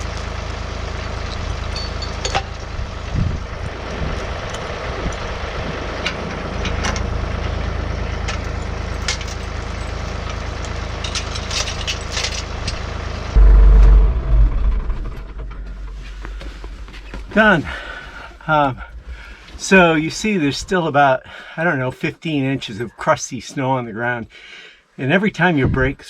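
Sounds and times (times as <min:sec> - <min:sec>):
tractor diesel engine running: 0:00.0 - 0:20.5.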